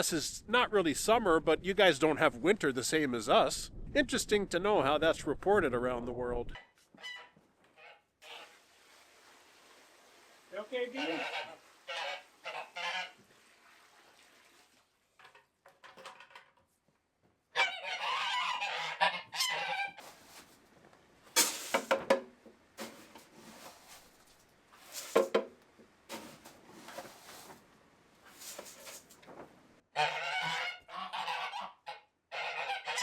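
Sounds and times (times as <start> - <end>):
geese honking: 6.6 - 8.6, 10.8 - 13.2, 17.5 - 20.1, 29.9 - 33.0.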